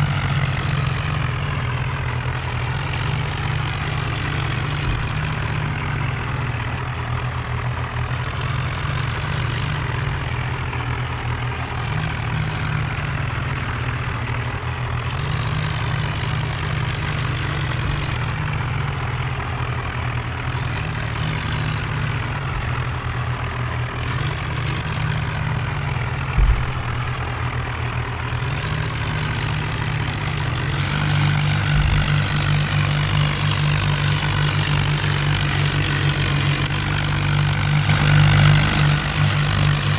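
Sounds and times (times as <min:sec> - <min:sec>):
diesel tractor engine under load: 0:00.0 - 0:39.9
sharp knock: 0:26.4 - 0:27.1.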